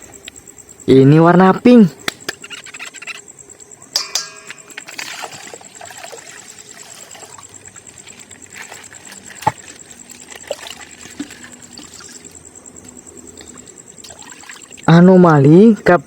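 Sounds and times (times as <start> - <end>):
sharp click: 2.0 - 3.2
water trickling from bag: 4.9 - 12.4, 14.0 - 14.9.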